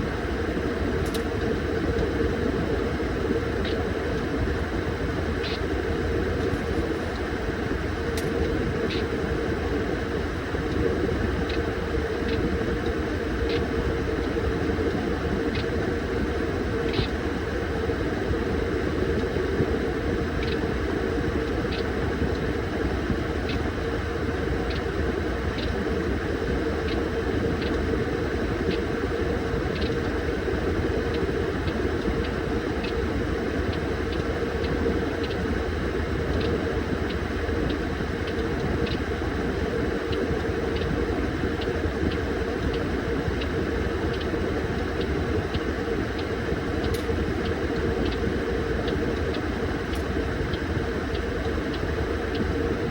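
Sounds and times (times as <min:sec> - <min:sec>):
light ticks: 0:36.3 - 0:39.1, 0:40.1 - 0:52.6.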